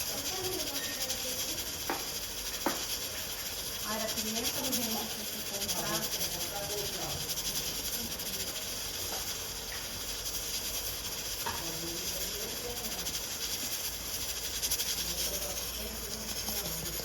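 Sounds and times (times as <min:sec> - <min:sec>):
onion frying in oil: 0:00.0 - 0:17.0.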